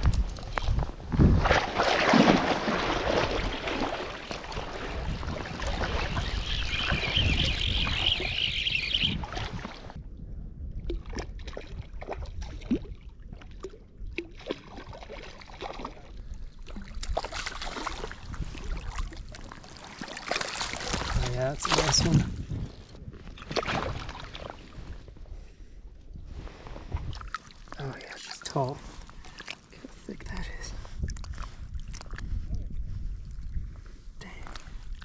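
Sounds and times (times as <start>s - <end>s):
water splashing and sloshing: 0.0s - 10.0s, 10.7s - 25.4s, 26.3s - 32.6s
wind on the microphone: 0.0s - 15.2s, 15.9s - 19.7s, 20.7s - 27.4s, 28.8s - 35.0s.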